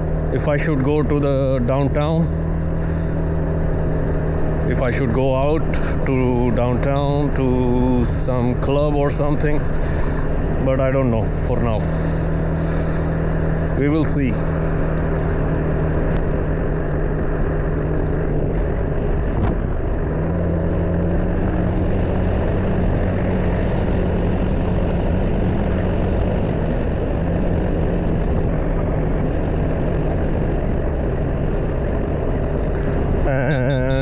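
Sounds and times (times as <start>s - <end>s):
scooter engine droning: 0.0s - 34.0s
wind noise on microphone: 16.1s - 21.8s.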